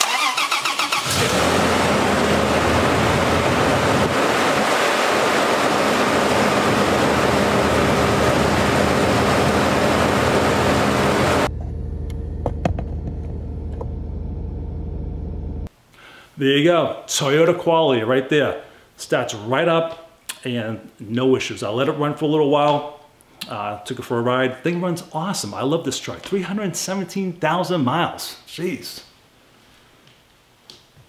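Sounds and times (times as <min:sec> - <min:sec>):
engine running after cold start: 0:00.0 - 0:15.7.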